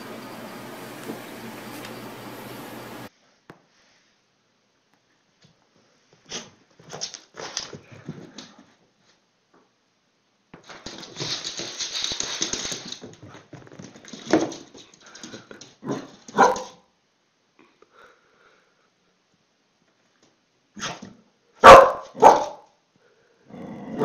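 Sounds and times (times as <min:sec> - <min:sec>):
dog barking: 0:15.9 - 0:16.8, 0:21.6 - 0:22.7
rough noisy dog sound: 0:20.8 - 0:22.7.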